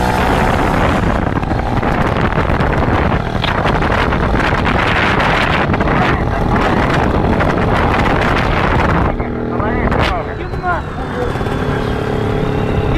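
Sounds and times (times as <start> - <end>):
car engine and road noise: 0.0 - 12.9
wind rushing over microphone: 0.0 - 12.9.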